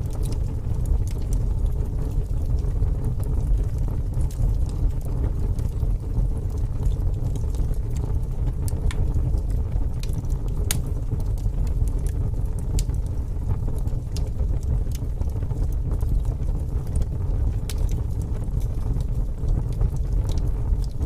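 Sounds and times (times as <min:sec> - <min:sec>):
fire crackling in a fireplace: 0:00.0 - 0:21.0.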